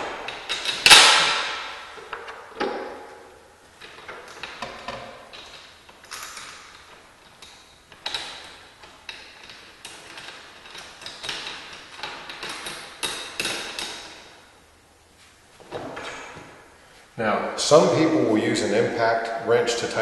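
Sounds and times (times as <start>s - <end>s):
metal bolts clinking and scraping: 0.0s - 2.9s, 3.7s - 14.3s.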